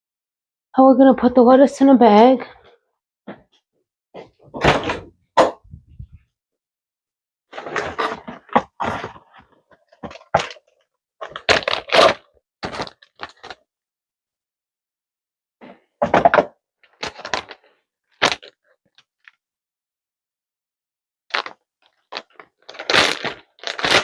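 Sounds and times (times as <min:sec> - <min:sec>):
knocks and thunks: 0:04.5 - 0:06.2.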